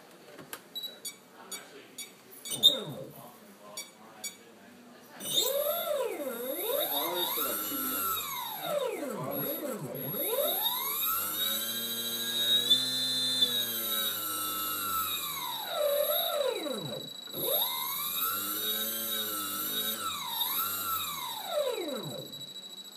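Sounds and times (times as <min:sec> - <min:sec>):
steady high-pitched tone: 0:05.2 - 0:12.0
brushless motor whining: 0:05.2 - 0:22.9.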